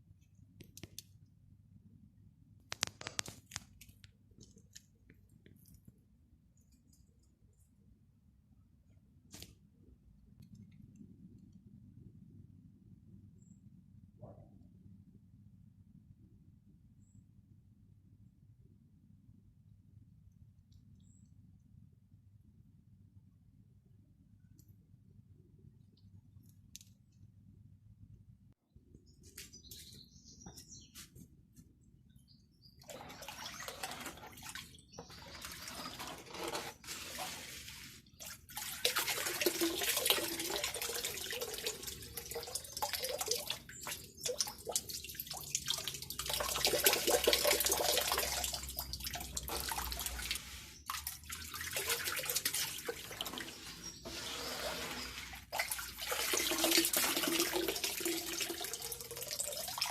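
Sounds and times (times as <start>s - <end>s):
running water: 32.8s - 59.9s.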